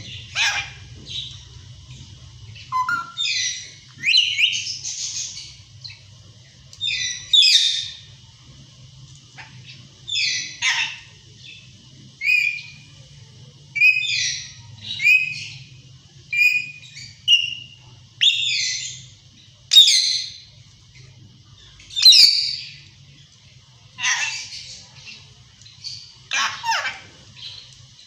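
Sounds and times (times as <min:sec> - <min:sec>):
parakeet shrill calls: 0:00.1 - 0:00.9, 0:02.6 - 0:05.4, 0:06.8 - 0:08.0, 0:10.1 - 0:11.1, 0:22.0 - 0:22.7, 0:24.0 - 0:24.7, 0:26.3 - 0:27.6.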